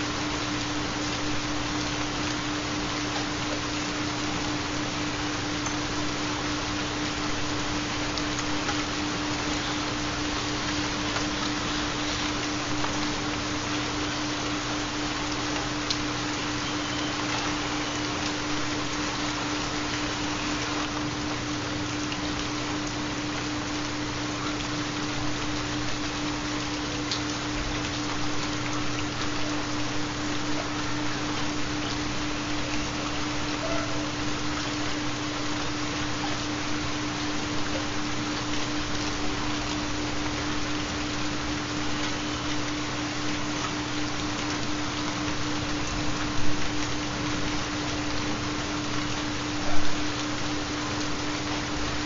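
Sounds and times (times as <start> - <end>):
steady rain: 0.0 - 52.0
raindrop ticks: 5.6 - 5.8, 14.8 - 19.1, 25.6 - 33.9.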